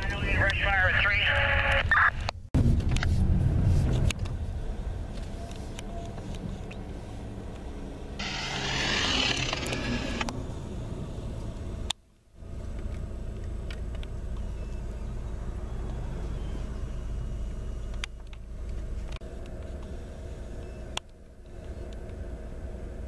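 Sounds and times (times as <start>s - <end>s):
fire truck engine rumble: 0.0s - 23.0s
loud hissing rush: 8.2s - 10.2s.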